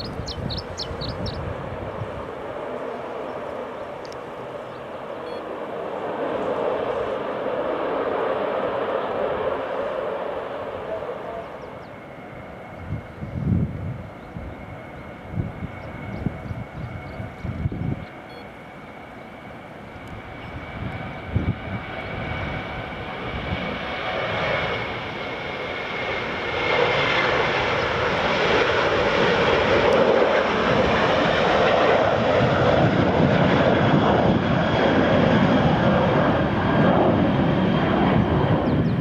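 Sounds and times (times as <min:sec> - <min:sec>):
airliner engines roaring: 0:00.0 - 0:39.0
faint high whine: 0:03.7 - 0:05.7, 0:10.8 - 0:20.9.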